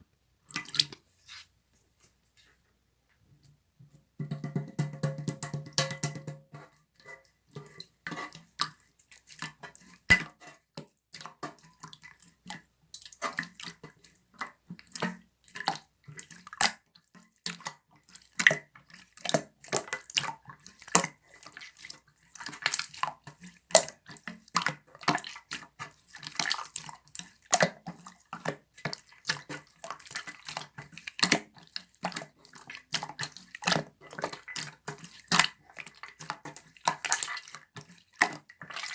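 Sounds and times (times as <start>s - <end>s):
slime squelching wet clicks: 0.5s - 1.0s, 26.3s - 38.9s.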